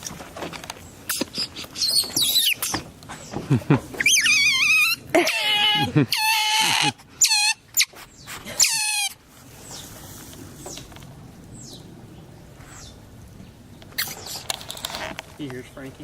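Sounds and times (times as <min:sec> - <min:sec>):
otters squeaking: 0:00.0 - 0:09.9, 0:13.9 - 0:15.7.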